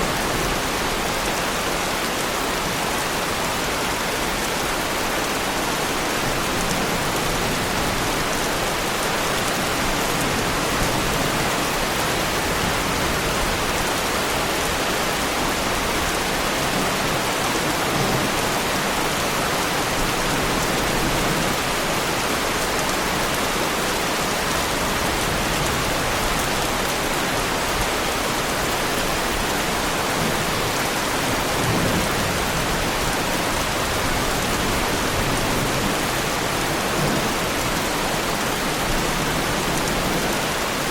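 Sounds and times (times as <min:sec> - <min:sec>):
heavy rain on a car: 0:00.0 - 0:40.9.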